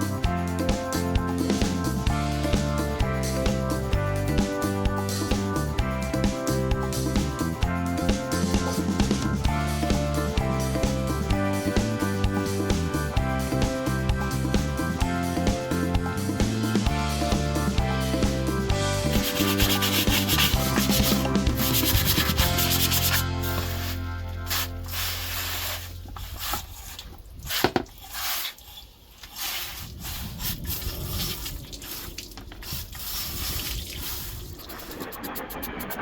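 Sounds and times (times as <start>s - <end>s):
background music: 0.0s - 26.2s
rubbing strokes on a surface: 19.1s - 35.6s.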